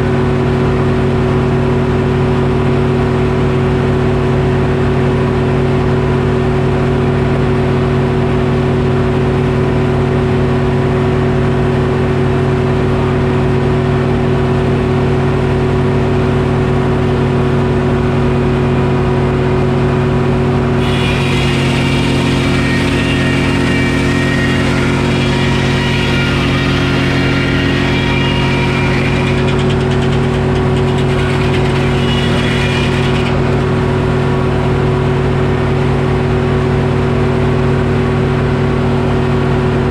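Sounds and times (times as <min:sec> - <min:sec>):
diesel engine running: 0:14.3 - 0:39.0
saw blade whining through log: 0:20.7 - 0:36.5.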